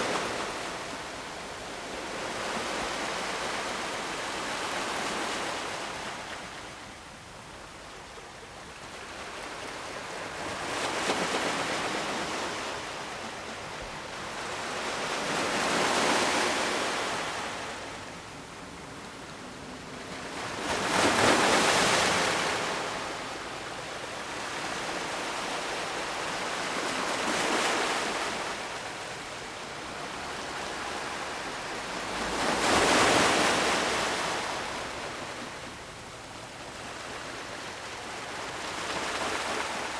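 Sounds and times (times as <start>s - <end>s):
ocean waves breaking: 29.8s - 35.8s.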